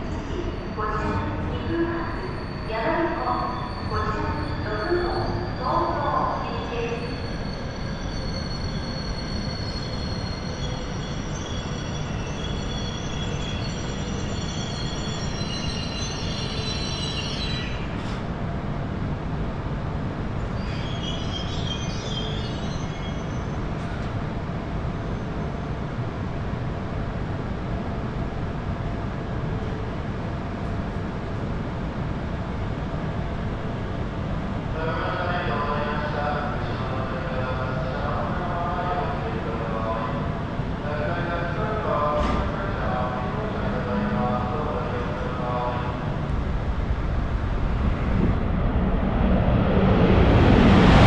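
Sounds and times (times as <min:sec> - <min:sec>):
train rumbling: 0:00.0 - 0:51.0.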